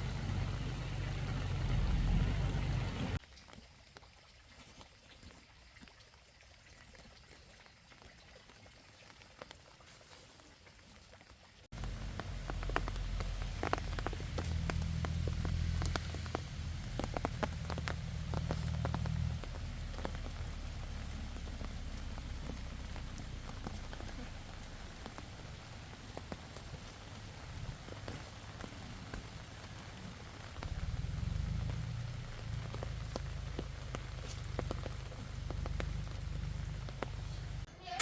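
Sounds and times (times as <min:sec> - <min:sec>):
steady low rumble: 0:00.0 - 0:03.2, 0:11.7 - 0:37.7
rain drops falling: 0:00.0 - 0:37.7.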